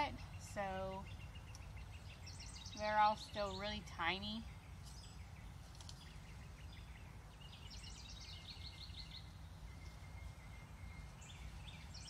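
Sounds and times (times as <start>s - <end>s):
low steady rumble: 0.0s - 12.0s
songbirds chirping and trilling: 0.0s - 12.0s.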